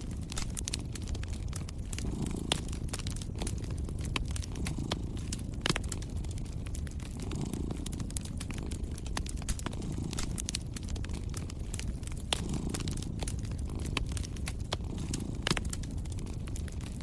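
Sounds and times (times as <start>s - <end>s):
cat purring: 0.0s - 17.0s
wood fire crackling and popping: 0.0s - 17.0s.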